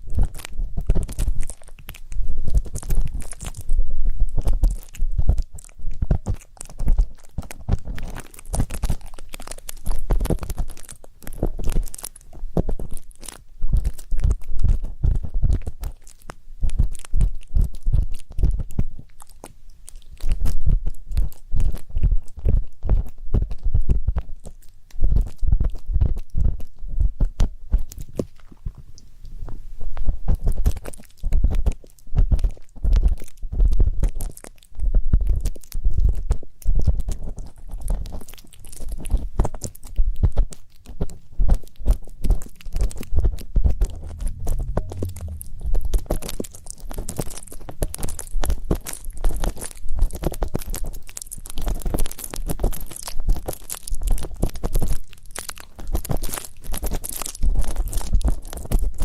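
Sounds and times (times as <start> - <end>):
ear pick scraping microphone: 43.2 - 49.5
low handling thumps: 43.4 - 48.8.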